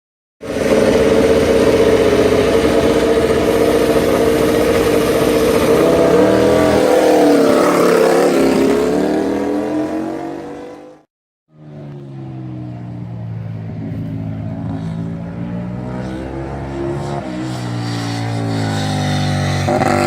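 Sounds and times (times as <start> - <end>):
racing motorcycle engine high revs: 0.4 - 20.0.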